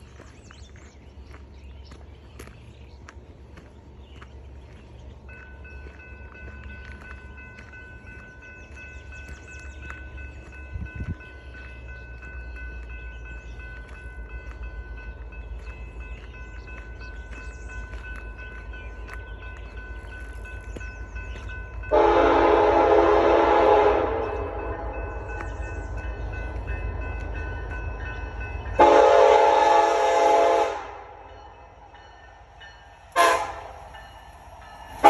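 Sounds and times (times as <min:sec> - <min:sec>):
train rumbling: 0:00.0 - 0:35.0
train horn blasting: 0:21.9 - 0:25.1, 0:28.8 - 0:31.3, 0:33.1 - 0:33.9.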